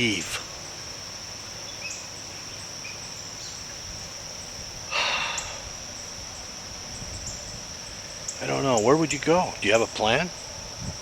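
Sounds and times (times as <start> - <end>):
crickets and insects droning: 0.0 - 11.0
breath close to microphone: 4.9 - 5.8.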